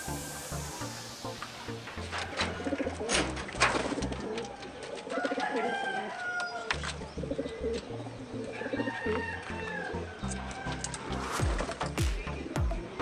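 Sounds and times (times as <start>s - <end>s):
pigeons cooing: 2.0s - 13.0s.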